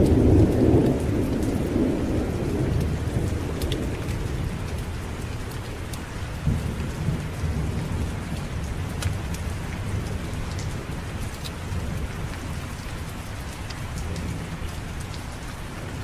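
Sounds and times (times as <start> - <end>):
rolling thunder: 0.0 - 5.3, 6.4 - 12.6
steady rain: 0.0 - 16.0.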